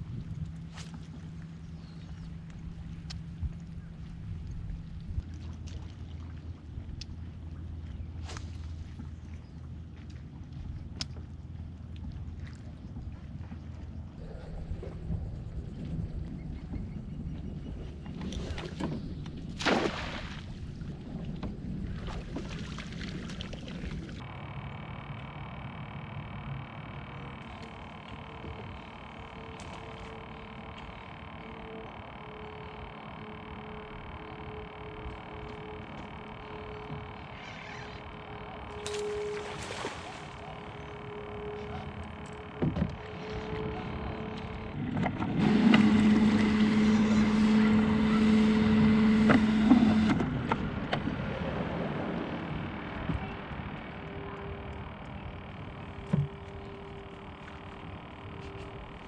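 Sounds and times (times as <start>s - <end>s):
low rumble: 0.0s - 59.0s
small boat motor running: 0.0s - 59.0s
water splashing: 18.2s - 24.2s, 38.7s - 40.9s.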